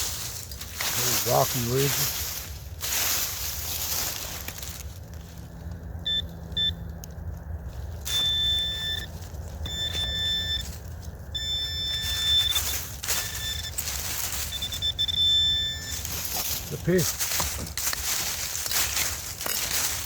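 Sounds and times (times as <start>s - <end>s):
rustles of movement through woods: 0.0s - 20.0s
metal detector beeps: 6.0s - 6.8s, 8.1s - 17.0s.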